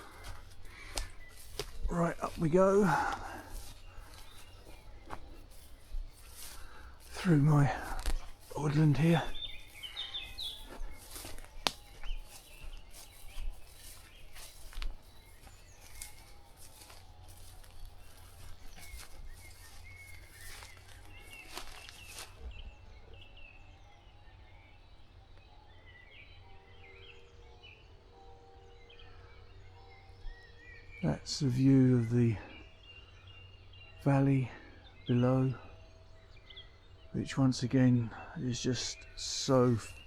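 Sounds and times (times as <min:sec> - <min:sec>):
footsteps crunching through undergrowth: 0:00.0 - 0:23.0
birds chirping and singing: 0:00.0 - 0:40.0.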